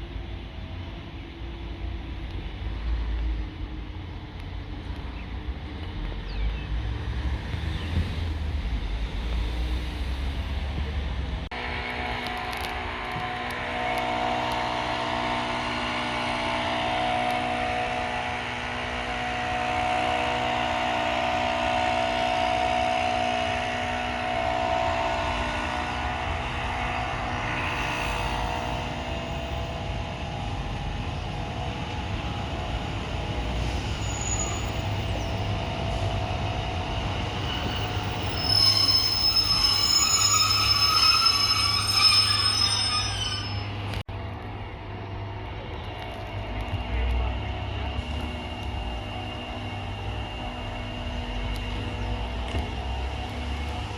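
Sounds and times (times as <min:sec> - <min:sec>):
train mechanical drone: 0:00.0 - 0:53.9
train wheels squealing: 0:19.3 - 0:44.0.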